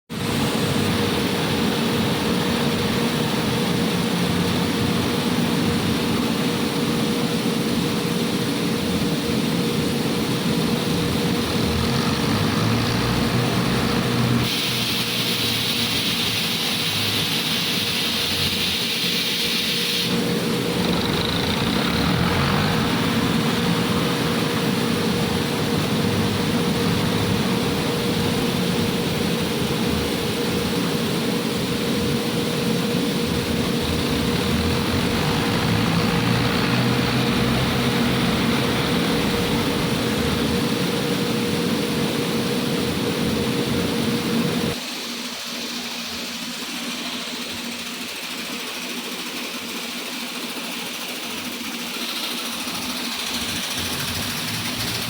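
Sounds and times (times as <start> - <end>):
tractor engine running: 10.3 - 15.2, 20.2 - 44.8, 51.4 - 55.0
high hiss: 11.1 - 42.6.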